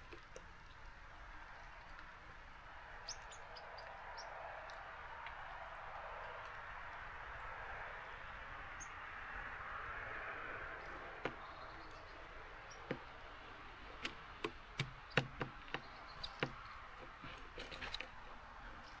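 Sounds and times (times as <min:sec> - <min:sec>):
soft rain hiss: 0:00.0 - 0:14.8
birds tapping at a seed feeder: 0:00.0 - 0:19.0.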